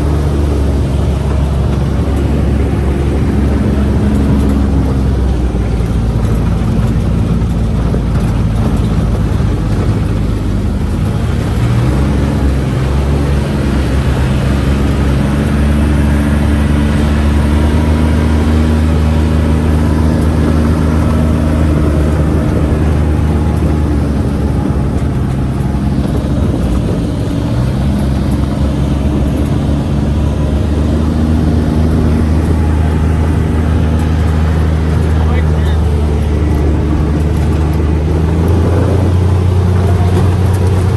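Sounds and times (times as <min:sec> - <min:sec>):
vehicle engine droning: 0:00.0 - 0:40.9.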